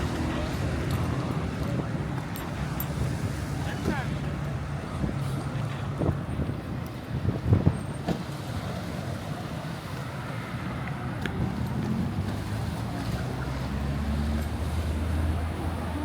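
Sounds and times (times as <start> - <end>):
wind noise: 0.0 - 8.8.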